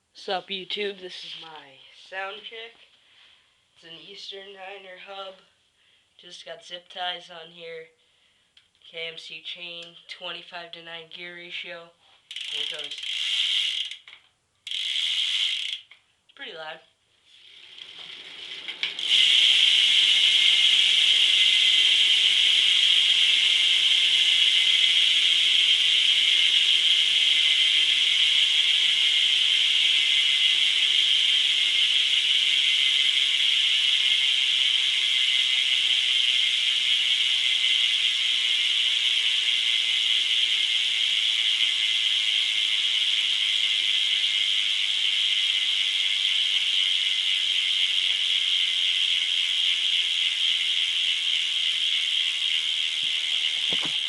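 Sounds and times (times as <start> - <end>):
bike hub freewheel ratcheting buzz: 12.2 - 16.0, 17.4 - 54.0.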